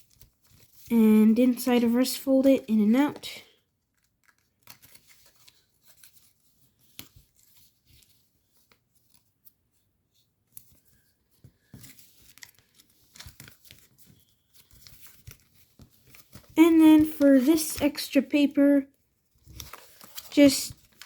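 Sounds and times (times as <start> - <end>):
paper being folded: 0.0 - 21.0.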